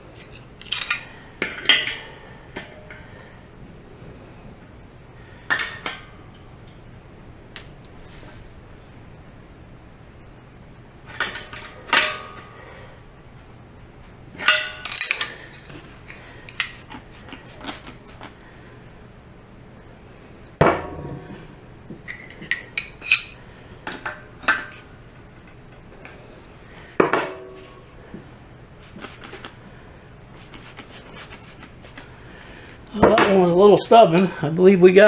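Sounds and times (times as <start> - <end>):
tools clanking on metal: 0.1 - 3.1, 11.1 - 12.8, 14.4 - 16.9, 20.6 - 24.9.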